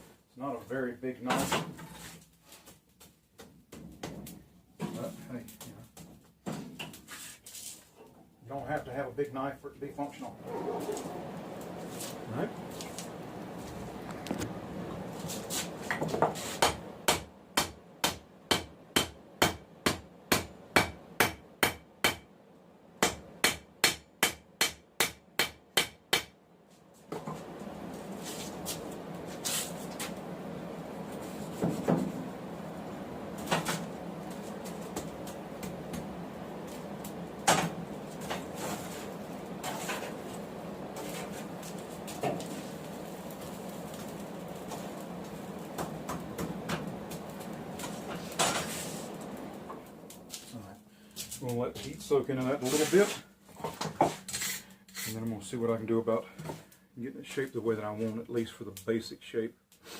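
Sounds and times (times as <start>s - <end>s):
hammer striking steel on anvil: 23.0s - 26.3s.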